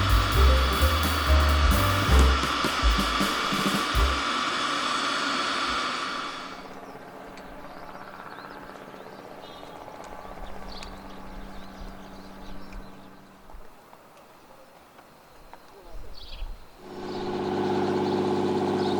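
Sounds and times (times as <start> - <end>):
jet engine high whine: 0.0 - 11.7.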